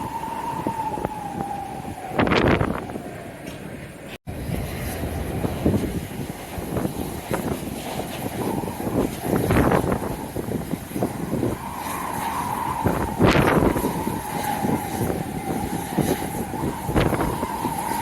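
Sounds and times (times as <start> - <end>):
wind buffeting microphone: 0.0 - 18.0
steady high whine: 4.3 - 18.0.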